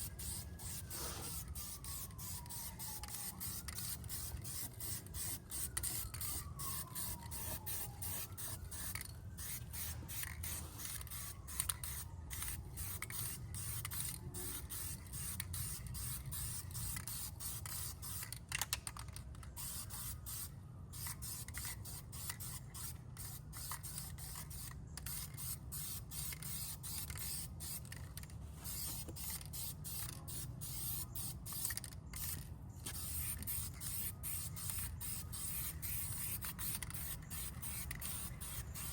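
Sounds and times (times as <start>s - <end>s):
aerosol can spraying: 0.0s - 6.0s, 28.6s - 31.6s, 32.9s - 38.9s.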